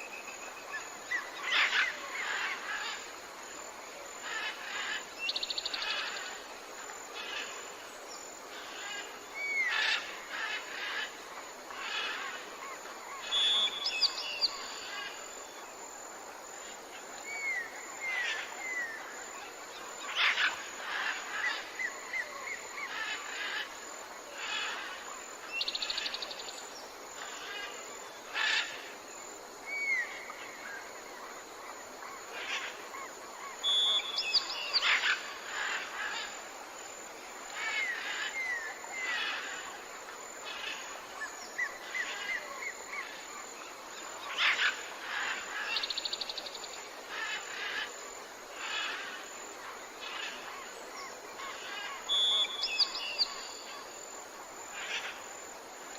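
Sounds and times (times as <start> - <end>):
steady background hiss: 0.0 - 55.9
birds calling and singing: 33.5 - 36.3, 50.0 - 53.8.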